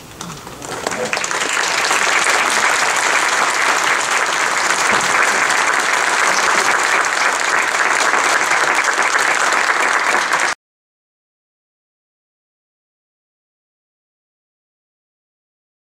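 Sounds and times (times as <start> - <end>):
audience applauding: 0.3 - 10.6.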